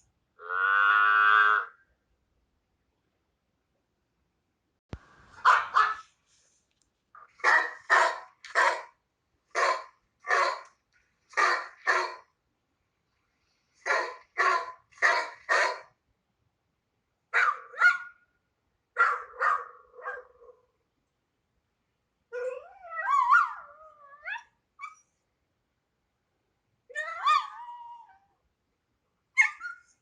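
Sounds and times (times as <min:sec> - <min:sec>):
dog barking: 0:05.4 - 0:06.1, 0:07.3 - 0:10.7, 0:11.3 - 0:12.3, 0:13.8 - 0:16.0, 0:17.3 - 0:18.2, 0:19.0 - 0:20.7.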